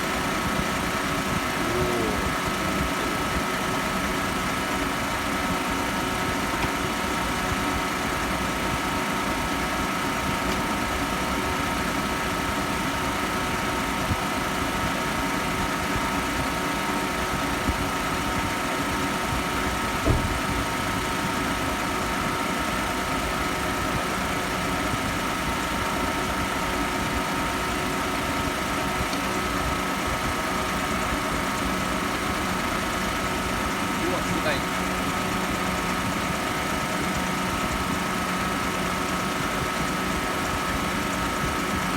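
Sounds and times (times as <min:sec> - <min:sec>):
car engine idling: 0:00.0 - 0:41.9
short knock: 0:20.0 - 0:20.4.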